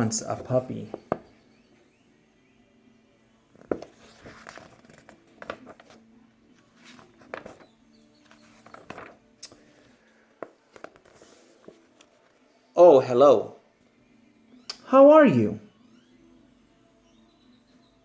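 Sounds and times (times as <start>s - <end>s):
paper pages rustling: 3.6s - 12.4s.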